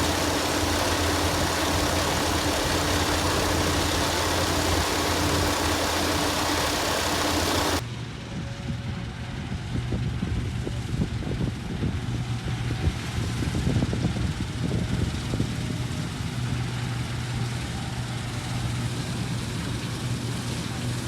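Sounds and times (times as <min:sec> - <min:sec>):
machinery engine humming: 0:00.0 - 0:07.8.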